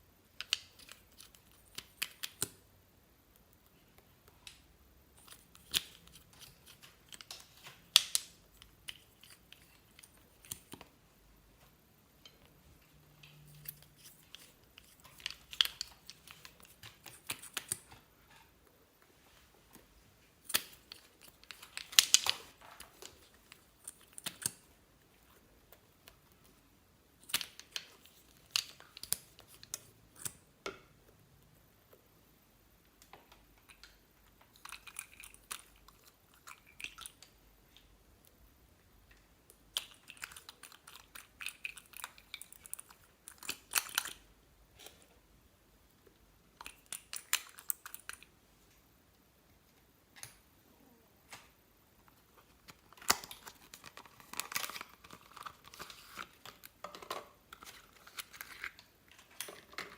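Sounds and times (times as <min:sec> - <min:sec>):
slime squelching and clicking: 0:13.5 - 0:18.0, 0:20.4 - 0:24.7.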